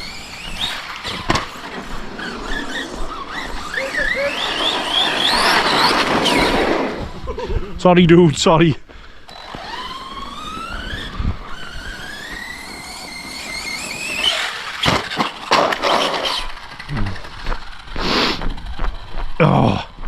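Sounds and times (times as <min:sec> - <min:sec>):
toy truck crashing and tumbling: 0:00.0 - 0:07.0, 0:09.3 - 0:17.9
electric motor whining: 0:00.0 - 0:07.3, 0:09.3 - 0:20.0.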